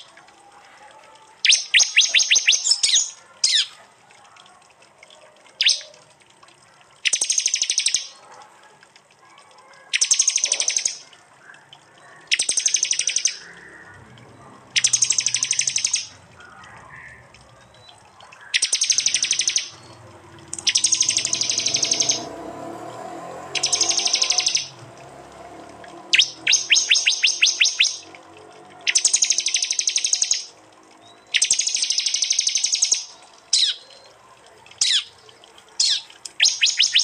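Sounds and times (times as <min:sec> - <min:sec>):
bird rapid ticking call: 0:01.4 - 0:03.7, 0:05.6 - 0:06.0, 0:07.0 - 0:08.2, 0:09.9 - 0:11.0, 0:12.1 - 0:14.0, 0:14.7 - 0:22.3, 0:23.6 - 0:24.8, 0:25.9 - 0:28.1, 0:28.8 - 0:34.1, 0:34.7 - 0:35.2, 0:35.8 - 0:37.0.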